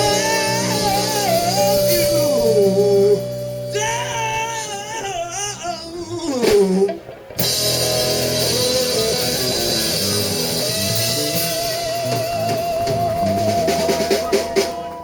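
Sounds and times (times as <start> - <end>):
drums and cymbals: 0.0 - 5.0, 6.4 - 15.0
long held note with vibrato: 0.0 - 5.3
electric guitar: 0.0 - 15.0.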